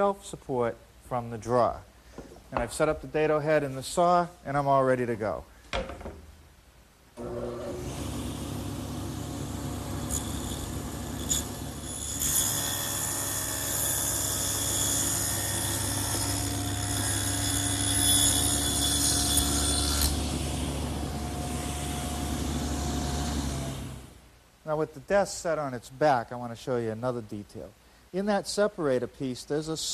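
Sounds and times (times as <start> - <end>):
table saw running: 7.2 - 24.1
saw cutting wood: 7.2 - 24.2.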